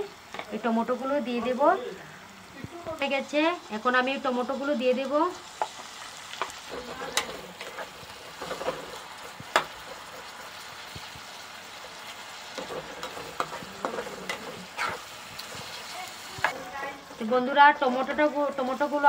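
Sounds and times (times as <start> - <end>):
tomatoes sizzling in hot oil: 0.0 - 19.0
spatula scraping pan: 6.7 - 10.6, 12.5 - 19.0.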